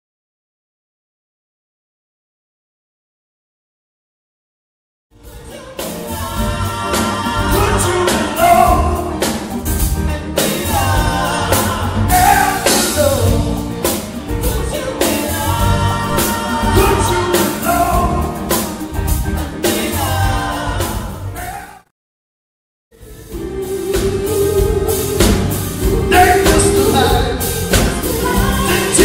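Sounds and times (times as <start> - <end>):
live rock band playing: 5.2 - 21.5, 23.0 - 29.0
lead singer singing: 5.2 - 21.6, 23.0 - 29.0
drums hitting: 5.3 - 21.6, 23.2 - 29.0.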